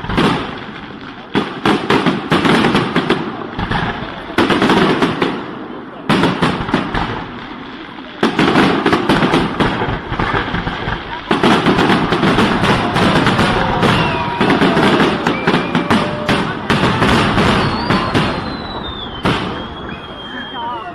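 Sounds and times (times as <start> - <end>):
fireworks bangs and crackling: 0.0 - 20.9.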